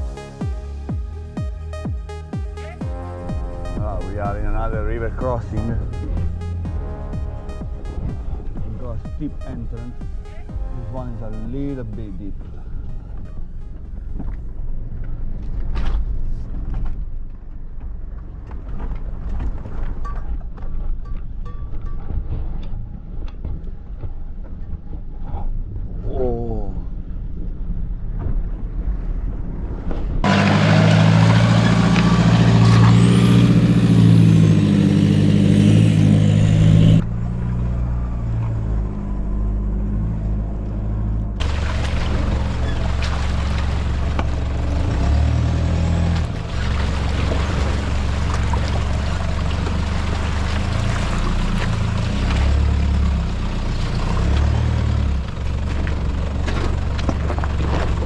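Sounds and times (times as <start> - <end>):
vehicle engine drone: 0.0 - 19.4, 30.2 - 58.0
water rushing around vehicle: 30.2 - 39.5, 41.4 - 58.0.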